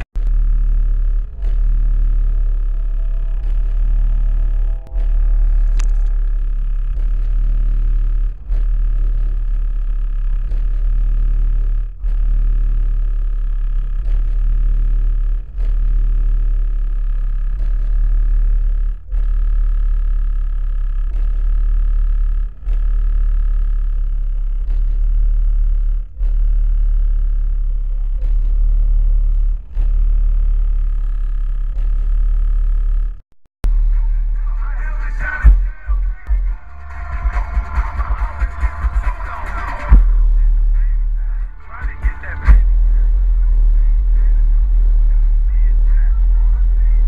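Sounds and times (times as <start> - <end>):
heavy bass music from subwoofers: 0.0 - 47.0.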